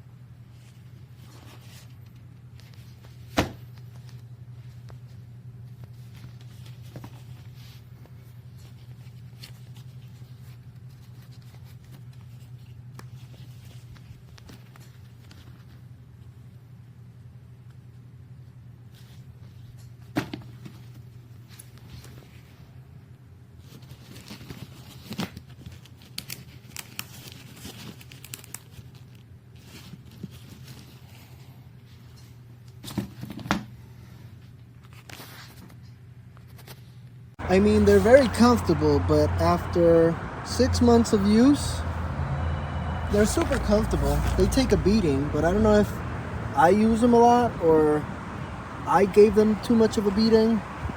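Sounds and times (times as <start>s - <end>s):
low hum: 37.4s - 46.6s.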